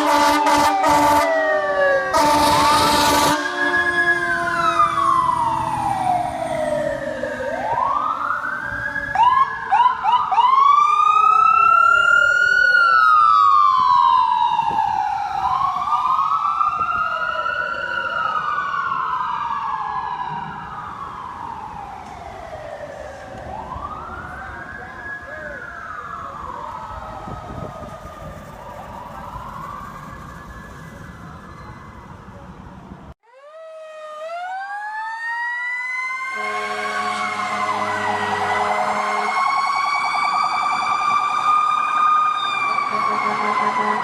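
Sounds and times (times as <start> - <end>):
emergency vehicle sirens wailing: 0.0 - 44.0
siren yelp: 0.0 - 44.0
short horn blast: 36.4 - 39.3, 42.9 - 44.0.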